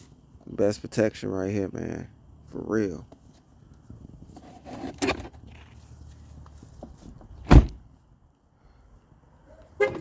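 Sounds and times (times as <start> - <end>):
car door shutting: 7.4 - 7.8.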